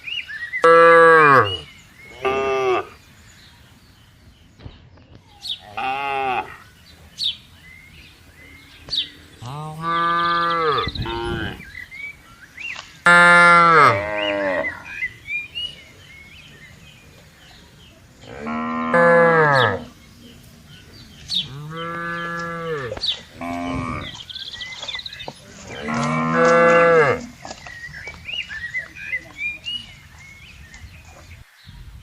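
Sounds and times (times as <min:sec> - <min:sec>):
cattle mooing: 0:13.1 - 0:14.8, 0:21.4 - 0:24.2.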